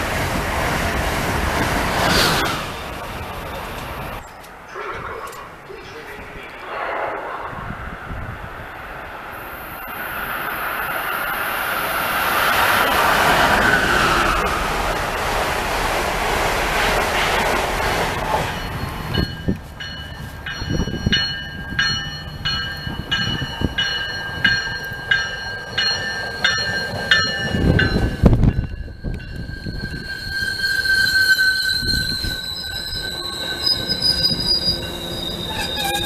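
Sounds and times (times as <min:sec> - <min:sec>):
low train rumbling: 0:00.0 - 0:36.0
train passing with rushing noise: 0:00.0 - 0:36.0
train bell ringing: 0:18.4 - 0:36.0.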